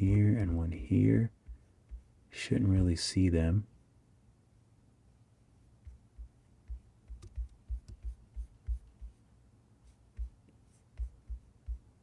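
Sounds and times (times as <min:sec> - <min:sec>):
stylus tapping on glass screen: 0:05.8 - 0:09.2, 0:10.2 - 0:12.0.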